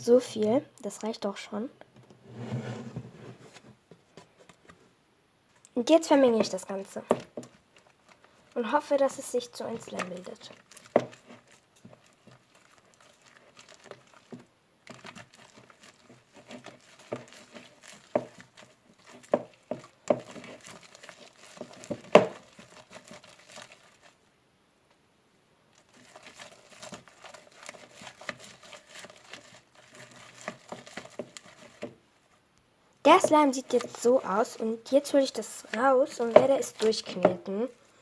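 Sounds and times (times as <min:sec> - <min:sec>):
slime crackling and squishing: 0:05.6 - 0:24.3, 0:25.7 - 0:32.0, 0:33.0 - 0:37.8
stirrer knocking against bowl: 0:14.2 - 0:23.1, 0:33.1 - 0:34.6, 0:35.7 - 0:37.5.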